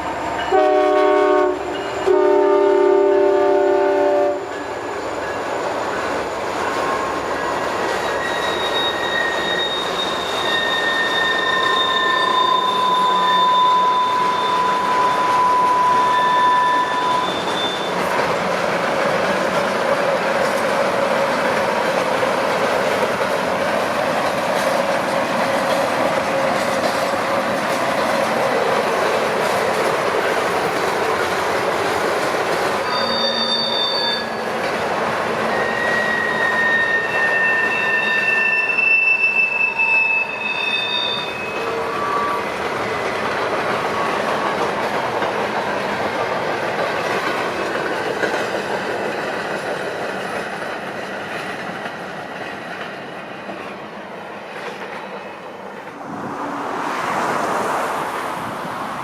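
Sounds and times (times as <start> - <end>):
train wheels rushing on rail: 0.0 - 59.0
train wheels squealing: 1.6 - 2.2, 4.3 - 18.5, 32.6 - 46.1.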